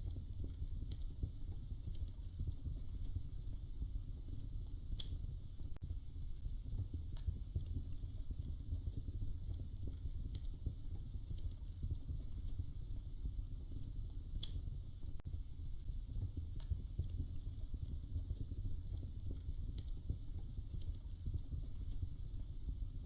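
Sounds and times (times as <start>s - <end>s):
fire crackles and pops: 0.0s - 23.0s
fire low rumble: 0.0s - 23.0s.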